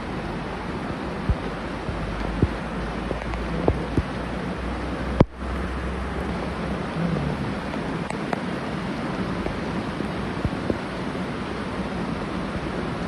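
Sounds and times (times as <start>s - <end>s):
heavy rain and floodwater rushing: 0.0s - 13.0s
wind rumbling on microphone: 0.0s - 13.0s.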